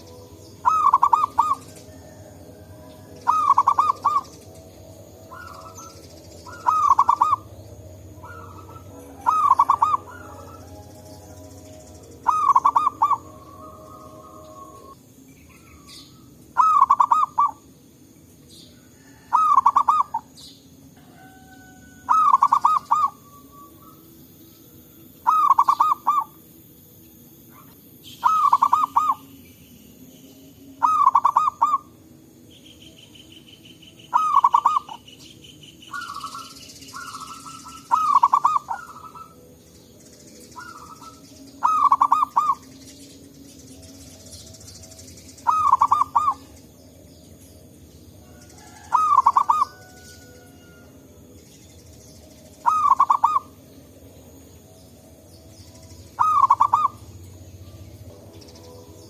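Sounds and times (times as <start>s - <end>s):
dove cooing: 0.0s - 17.7s, 18.8s - 24.1s, 25.2s - 26.4s, 27.5s - 29.4s, 30.8s - 32.0s, 34.0s - 35.1s, 35.9s - 39.6s, 40.6s - 42.8s, 45.4s - 46.8s, 48.3s - 51.0s, 52.6s - 53.8s, 56.0s - 57.7s
faint chirping: 0.0s - 59.0s.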